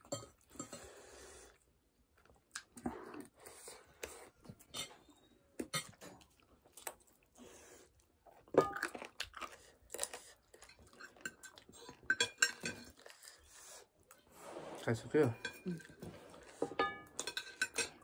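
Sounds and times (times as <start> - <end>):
chewing and biting: 5.6 - 14.3.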